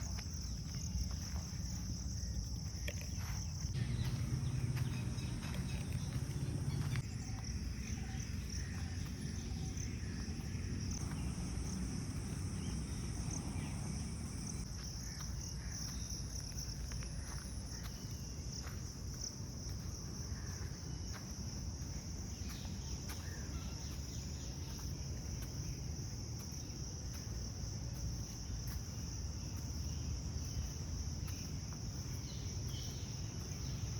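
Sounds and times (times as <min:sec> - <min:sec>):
crickets chirping: 0:00.0 - 0:33.9
low rumble: 0:03.8 - 0:07.0.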